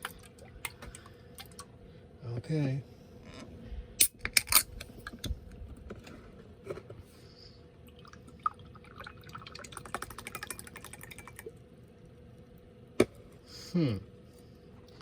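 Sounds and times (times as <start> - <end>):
thick drink pouring into glass: 7.9 - 11.6.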